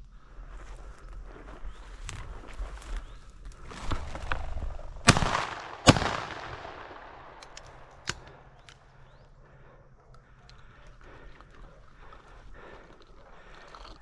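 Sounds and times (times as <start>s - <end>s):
shotgun shots: 5.1s - 8.6s
sharp click: 7.4s - 8.8s.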